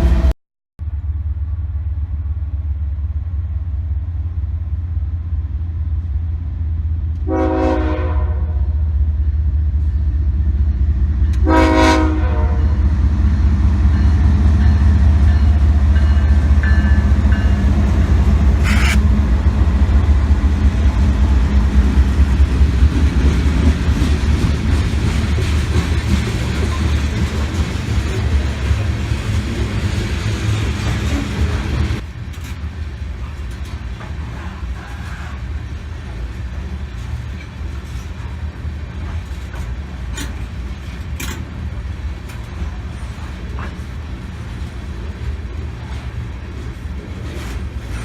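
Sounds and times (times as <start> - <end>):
diesel locomotive rumble: 0.0 - 48.0
train air horn blasts: 7.2 - 8.8, 11.4 - 12.8, 18.6 - 19.0.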